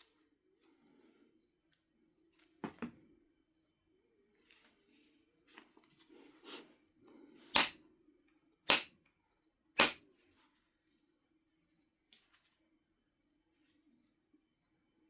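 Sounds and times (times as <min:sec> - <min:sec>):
tool striking flint: 0:07.5 - 0:07.8, 0:08.7 - 0:09.0, 0:09.8 - 0:10.0.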